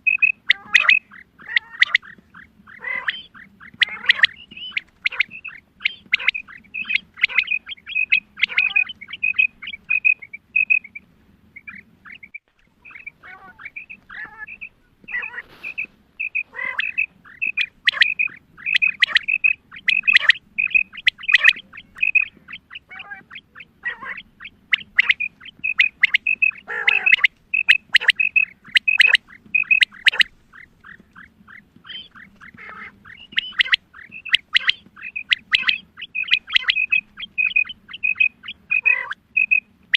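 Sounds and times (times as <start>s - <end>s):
female quail calling: 0.0s - 39.9s.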